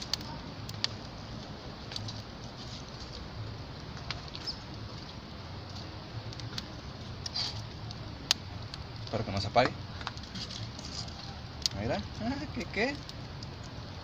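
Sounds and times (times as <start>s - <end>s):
fire hissing: 0.0s - 14.0s
fire pops: 0.0s - 14.0s
wood fire crackling: 0.0s - 14.0s.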